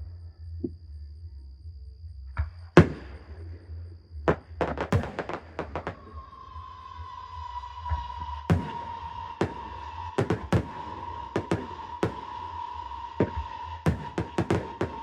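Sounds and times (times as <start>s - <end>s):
fireworks bangs: 4.3s - 6.2s, 8.5s - 15.0s
sharp firework cracks: 4.6s - 6.2s, 8.5s - 15.0s
steady tone: 5.0s - 15.0s.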